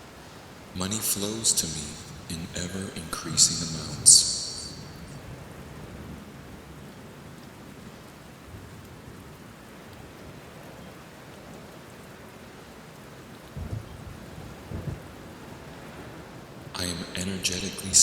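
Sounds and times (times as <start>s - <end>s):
steady rainfall: 0.0s - 18.0s
low rumble of thunder: 13.5s - 16.5s.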